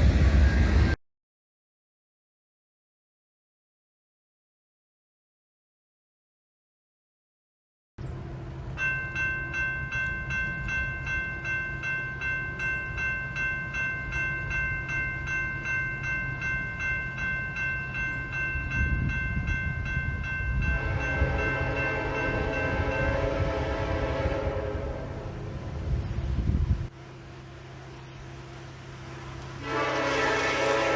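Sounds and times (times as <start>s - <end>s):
train rumble: 0.0s - 1.0s, 8.0s - 30.9s
crossing bell ringing: 8.0s - 30.9s
train air horn: 20.7s - 25.4s, 29.6s - 30.9s.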